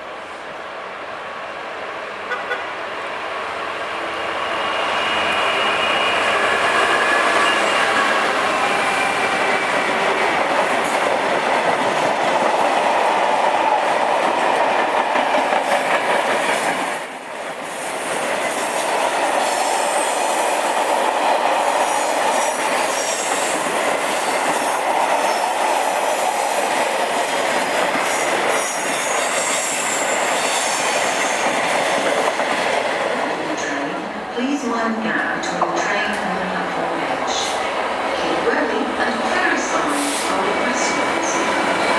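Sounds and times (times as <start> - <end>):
train wheels on rail: 0.0 - 41.9
high wheel squeal: 4.3 - 8.3.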